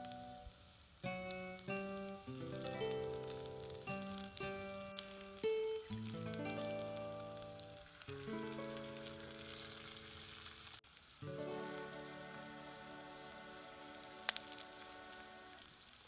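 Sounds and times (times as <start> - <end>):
food sizzling in a frying pan: 0.0 - 16.0
background music of held notes: 1.1 - 10.0, 11.2 - 15.8.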